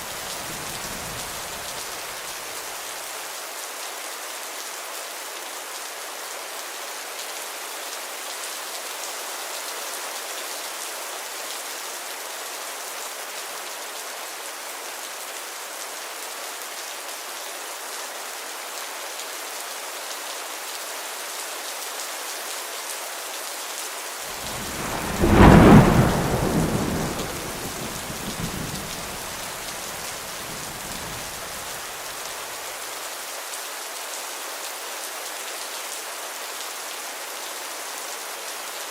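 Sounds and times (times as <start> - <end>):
heavy rain falling: 0.0 - 3.8, 24.0 - 38.8
thunderclap rumbling: 24.3 - 31.7.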